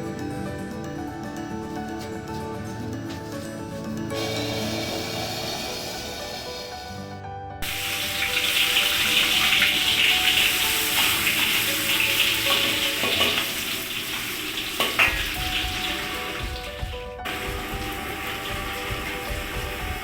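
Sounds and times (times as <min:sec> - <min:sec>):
food sizzling in hot oil: 0:07.6 - 0:16.4.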